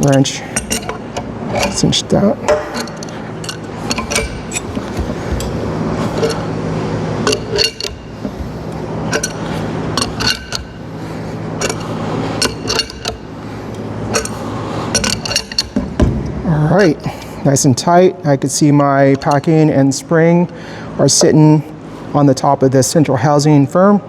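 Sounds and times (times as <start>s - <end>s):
wrench clinking on steel fittings: 0.0s - 1.0s, 1.6s - 6.6s, 7.2s - 10.8s, 11.6s - 15.9s, 18.8s - 19.6s
low hum: 0.0s - 17.5s.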